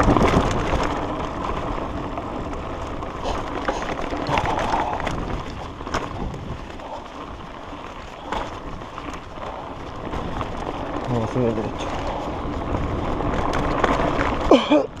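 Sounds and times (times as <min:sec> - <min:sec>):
bike rattling over bumps: 0:00.0 - 0:15.0
tyre noise on dirt: 0:00.0 - 0:15.0
wind on microphone: 0:03.2 - 0:11.0.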